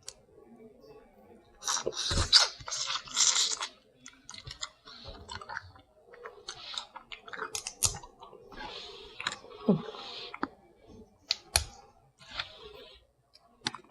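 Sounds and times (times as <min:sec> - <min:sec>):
chewing and wet smacking: 0:01.6 - 0:08.4, 0:09.2 - 0:10.6
crunching: 0:01.6 - 0:10.6.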